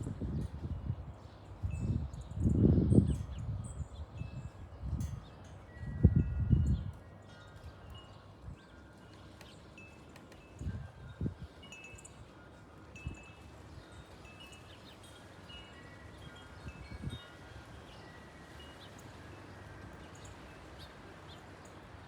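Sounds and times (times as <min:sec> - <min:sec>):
wind chimes tinkling: 0:03.1 - 0:22.0.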